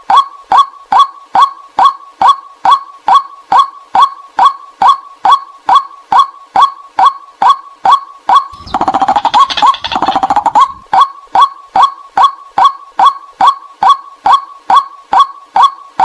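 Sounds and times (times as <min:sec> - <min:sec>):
bird harsh chattering: 0:08.5 - 0:10.9
bird calling short kwak notes: 0:08.5 - 0:11.0.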